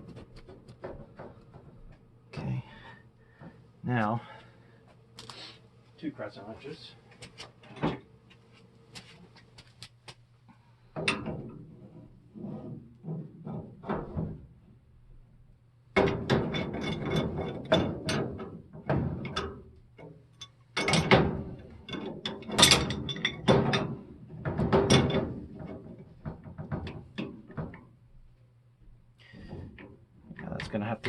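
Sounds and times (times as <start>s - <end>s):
wrenches clinking on metal pipe: 16.3s - 18.4s, 20.4s - 21.2s, 21.8s - 24.0s.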